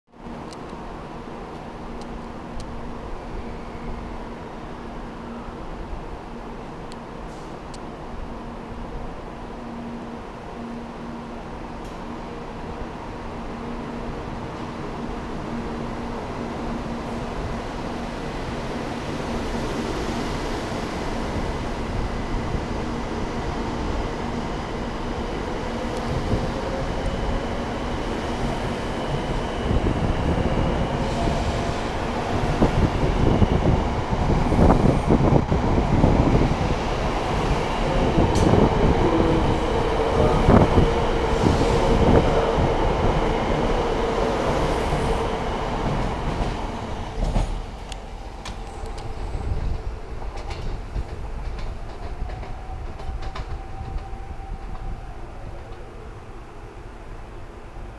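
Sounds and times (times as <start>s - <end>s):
train wheels clattering: 45.8s - 54.9s.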